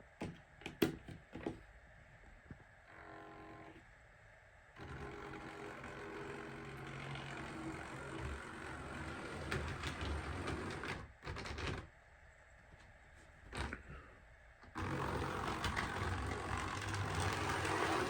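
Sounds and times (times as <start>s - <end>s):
model train motor hum: 14.8s - 18.0s
wheels clicking over rail joints: 15.0s - 18.0s.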